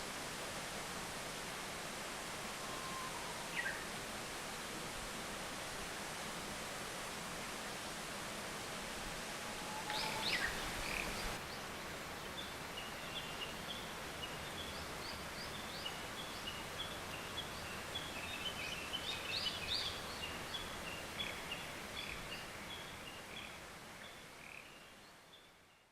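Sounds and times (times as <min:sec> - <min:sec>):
background hiss: 0:00.0 - 0:25.9
sweeping bird calls: 0:09.8 - 0:11.4.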